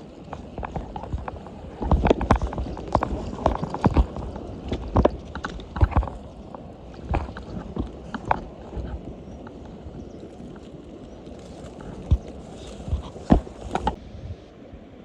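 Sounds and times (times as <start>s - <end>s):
irregular knocks and clacks: 0.2s - 9.8s.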